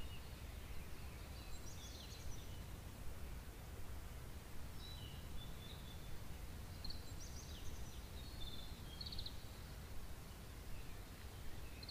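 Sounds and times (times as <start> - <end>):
songbird chirping and trilling: 0.0 - 2.8, 4.8 - 11.9.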